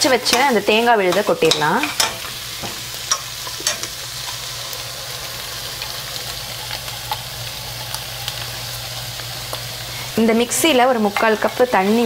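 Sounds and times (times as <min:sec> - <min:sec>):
liver sizzling in a pan: 0:00.0 - 0:12.0.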